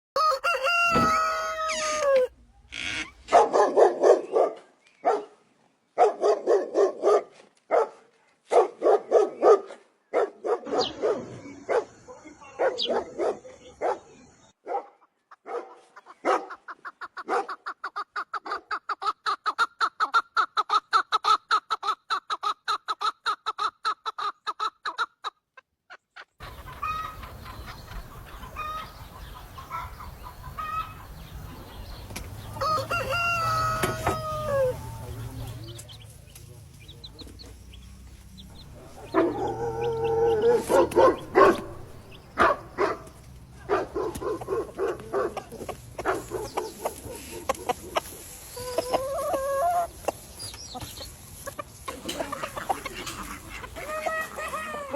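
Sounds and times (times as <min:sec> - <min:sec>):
dog barking: 0:03.3 - 0:05.4, 0:06.0 - 0:16.6, 0:17.2 - 0:17.6, 0:38.8 - 0:48.0
chickens clucking: 0:15.1 - 0:54.9.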